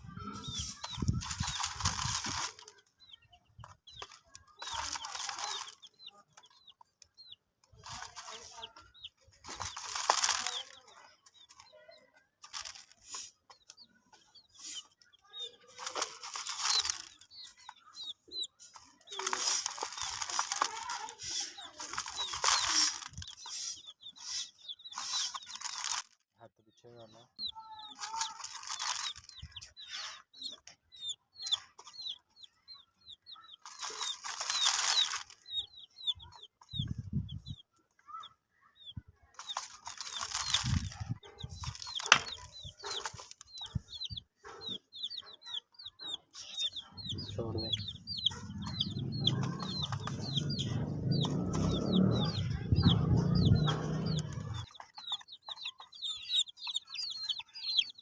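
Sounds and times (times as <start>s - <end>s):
rustling and scratching: 0.0s - 26.4s, 27.2s - 38.4s, 39.2s - 58.0s
baby chicks peeping: 0.0s - 58.0s.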